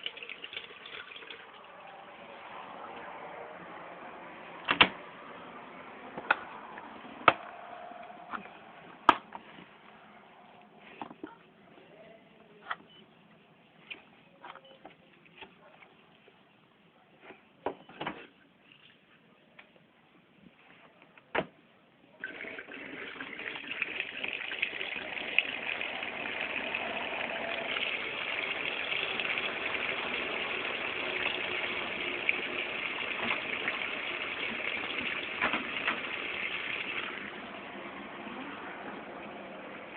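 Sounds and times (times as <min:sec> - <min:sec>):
water rushing through washing machine: 0:00.0 - 0:04.1, 0:22.2 - 0:39.9.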